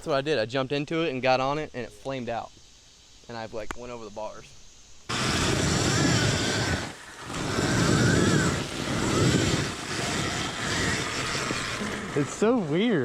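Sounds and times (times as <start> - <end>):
wind rush on microphone: 5.1 - 12.4
electric motor whine: 5.1 - 13.0.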